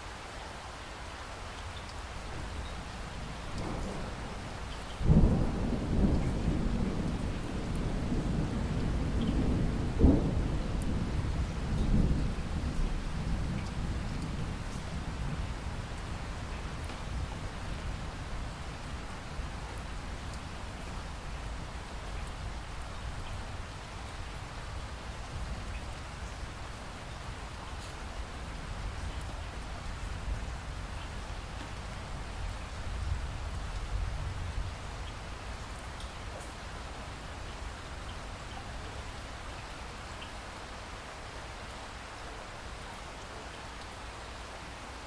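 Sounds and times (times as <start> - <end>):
faint raindrops: 0.0 - 45.0
steady rain falling: 0.0 - 45.0
raindrops ticking: 1.5 - 15.1, 34.8 - 40.4.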